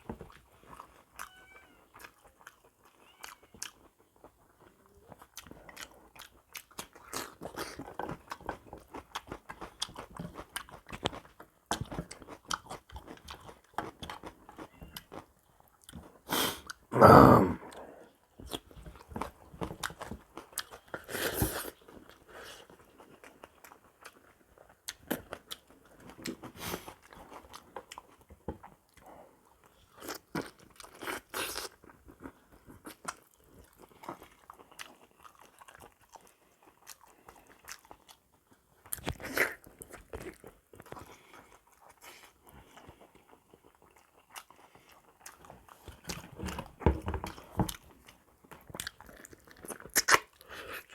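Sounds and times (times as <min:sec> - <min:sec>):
person chewing and crunching: 0:00.0 - 0:50.9.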